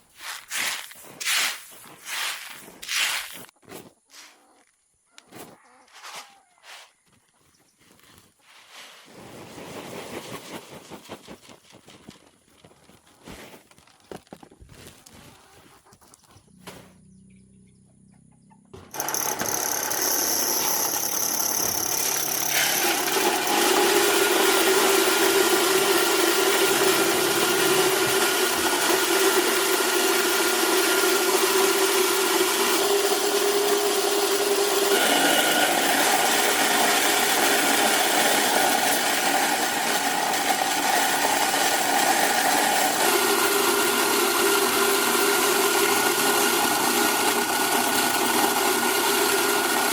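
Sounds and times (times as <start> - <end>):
motor-driven machine running: 18.8 - 49.9.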